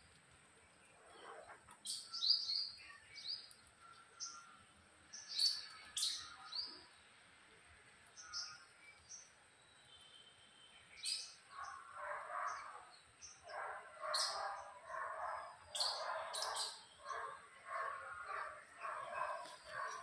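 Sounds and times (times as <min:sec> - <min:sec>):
birds chirping: 0:00.3 - 0:20.0
loud repeated bird calls: 0:08.2 - 0:20.0.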